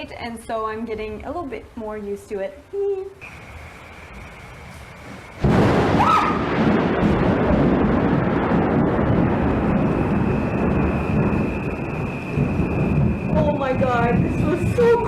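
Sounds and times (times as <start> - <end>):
close thunder crack and rumble: 3.3 - 15.0.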